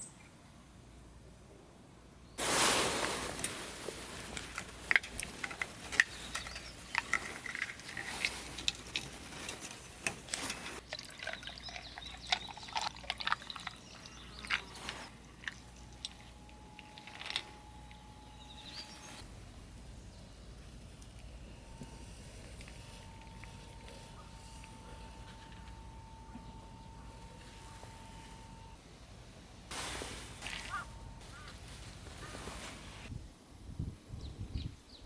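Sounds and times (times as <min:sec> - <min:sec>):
water dripping: 0:10.8 - 0:16.4.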